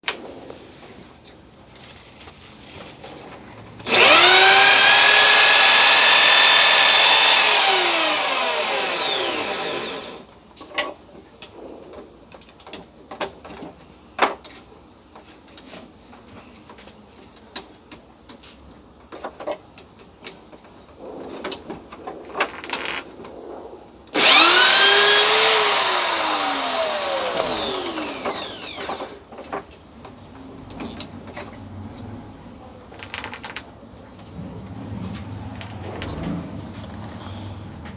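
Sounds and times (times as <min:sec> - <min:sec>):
small power tool whining: 0:03.9 - 0:10.3, 0:24.2 - 0:29.2.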